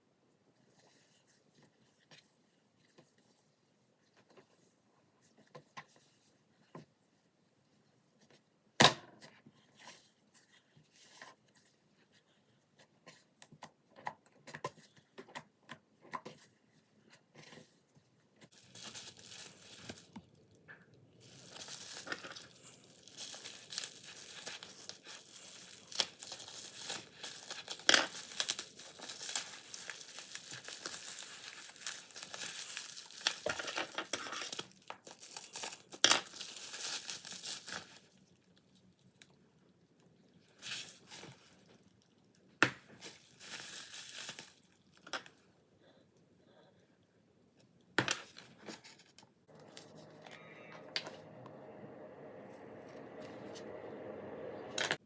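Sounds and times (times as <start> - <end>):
plastic packaging crinkling and tearing: 18.5 - 20.6, 21.2 - 38.6, 42.9 - 45.0.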